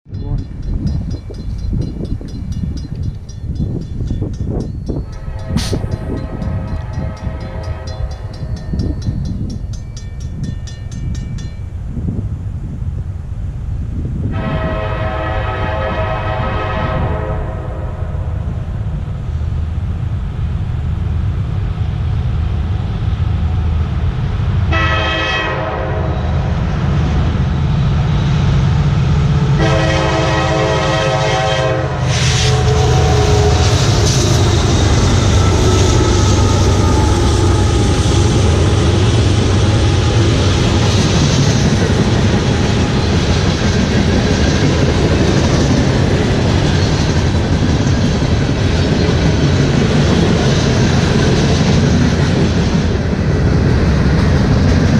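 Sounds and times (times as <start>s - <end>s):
locomotive engine rumble: 0.1s - 15.3s, 26.1s - 54.9s
train horn blasts: 5.1s - 8.5s, 14.3s - 18.4s, 24.7s - 26.5s, 29.5s - 38.9s.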